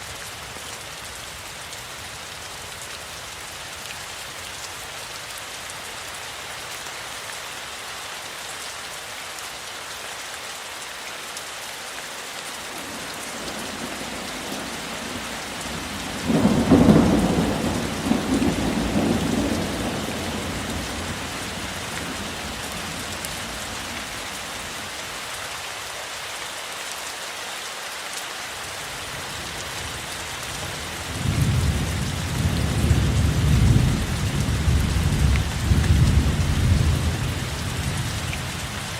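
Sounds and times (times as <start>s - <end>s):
steady rain falling: 0.0s - 38.9s
thunder clap and rumble: 13.4s - 23.1s, 31.1s - 38.3s.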